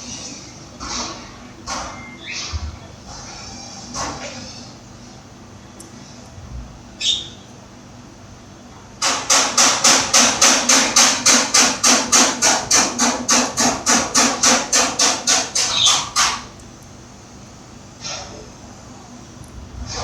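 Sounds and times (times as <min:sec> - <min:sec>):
bird harsh calls: 0:07.0 - 0:07.5, 0:15.6 - 0:16.4.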